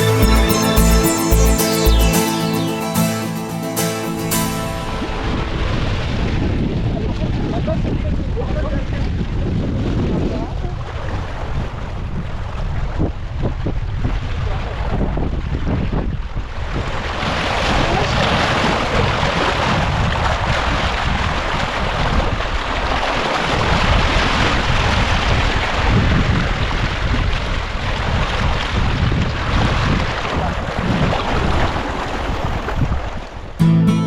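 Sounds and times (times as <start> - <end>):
low rumble: 4.7 - 8.3
wind buffeting microphone: 5.1 - 33.6
rushing water: 16.6 - 33.6.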